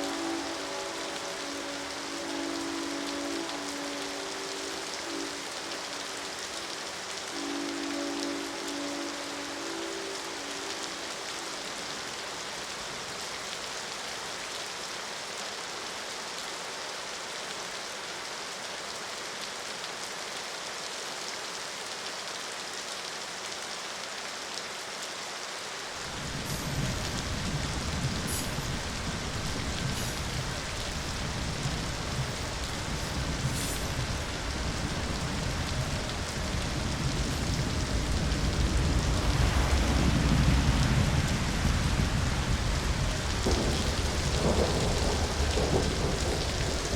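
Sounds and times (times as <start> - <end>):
heavy rain: 0.0 - 46.9
deep low rumble: 32.6 - 46.9.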